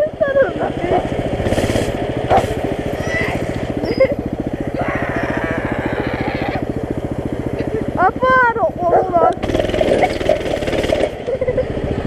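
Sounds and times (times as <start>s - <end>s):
small engine idling: 0.0s - 12.0s
hissing bursts of noise: 1.4s - 3.6s.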